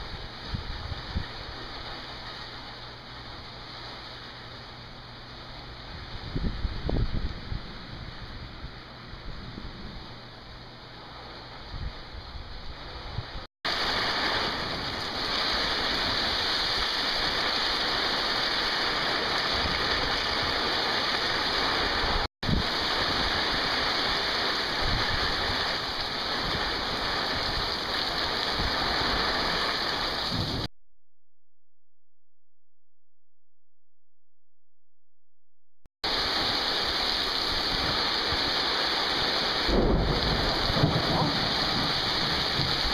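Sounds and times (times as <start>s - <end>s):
heavy rain pouring: 13.7s - 30.7s, 36.0s - 42.9s.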